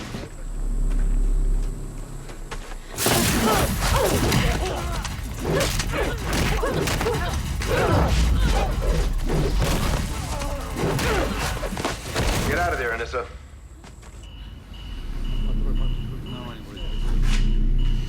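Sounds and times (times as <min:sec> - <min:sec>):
low rumble: 0:00.0 - 0:12.8, 0:14.4 - 0:18.0
punches and body thuds: 0:03.0 - 0:13.0
grunts: 0:03.1 - 0:12.8.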